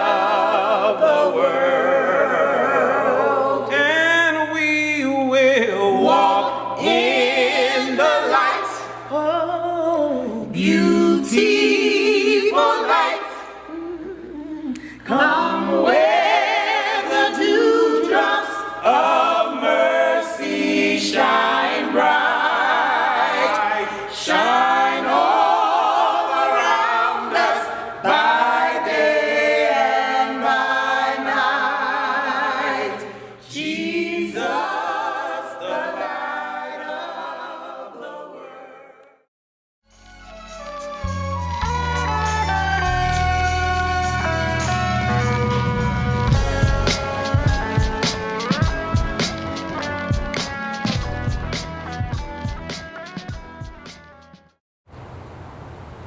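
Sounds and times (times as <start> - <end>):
voices singing a hymn: 0.0 - 39.3, 46.3 - 49.8.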